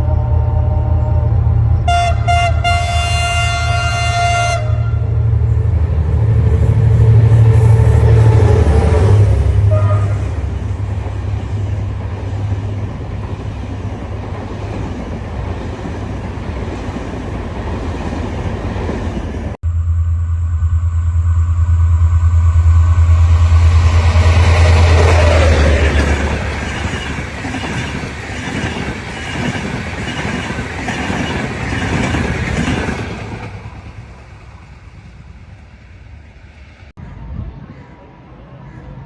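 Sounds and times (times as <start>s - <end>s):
train horn chord: 0.0s - 5.4s, 7.6s - 10.7s
diesel engine drone: 0.0s - 12.8s, 19.6s - 28.2s
train rumbling: 0.0s - 39.0s.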